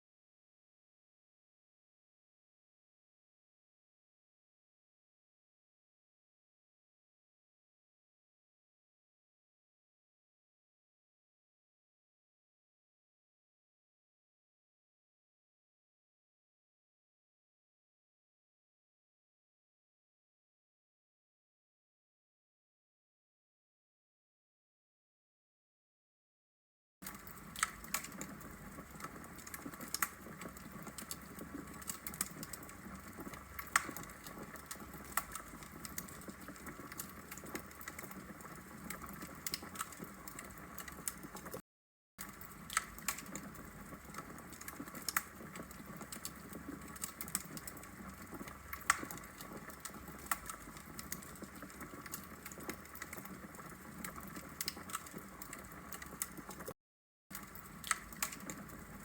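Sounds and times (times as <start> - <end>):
logs crackling and popping: 27.0 - 41.6, 42.2 - 56.7, 57.3 - 59.0.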